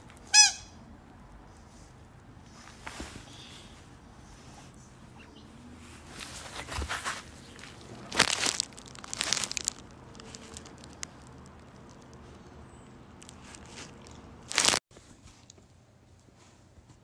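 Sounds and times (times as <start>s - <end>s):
crinkling and crunching: 6.1s - 15.7s.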